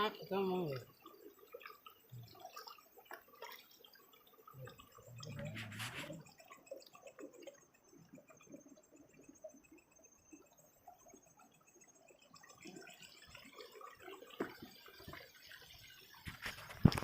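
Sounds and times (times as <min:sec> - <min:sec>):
water sloshing: 0:00.0 - 0:06.5
person wading through water: 0:00.1 - 0:07.5.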